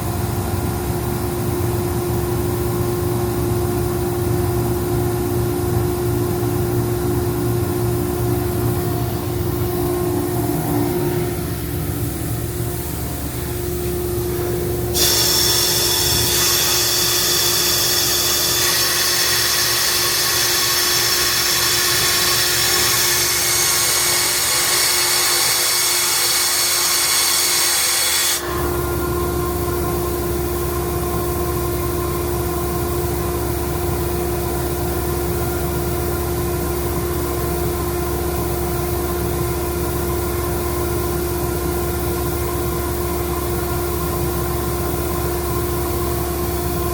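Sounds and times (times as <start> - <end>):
air compressor humming: 0.0 - 46.9
compressed air hissing: 14.9 - 28.6.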